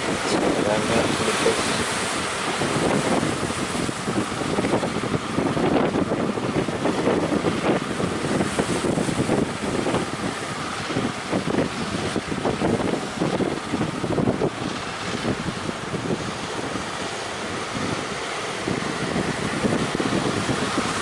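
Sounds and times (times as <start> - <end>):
sea waves and surf: 0.0 - 21.0
wind gusting on microphone: 0.0 - 21.0.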